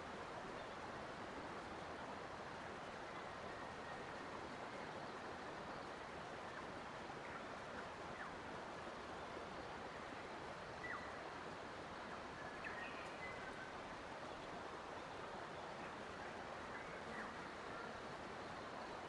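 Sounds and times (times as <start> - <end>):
flowing water rushing: 0.0 - 19.0.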